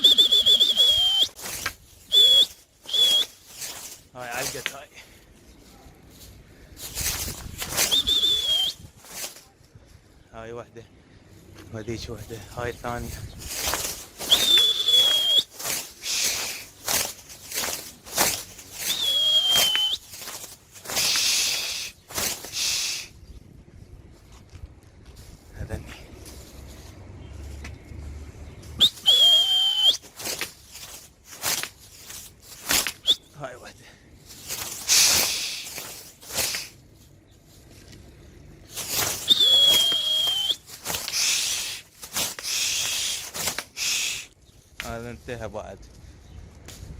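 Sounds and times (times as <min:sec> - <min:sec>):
person whistling: 0:00.0 - 0:01.4, 0:02.1 - 0:03.4, 0:07.8 - 0:08.9, 0:14.3 - 0:16.5, 0:18.9 - 0:20.1, 0:28.8 - 0:30.0, 0:33.0 - 0:33.3, 0:39.2 - 0:40.6
rustling bursts: 0:00.0 - 0:45.3
bursts of hissing noise: 0:13.5 - 0:23.2, 0:34.5 - 0:36.9, 0:38.7 - 0:44.4.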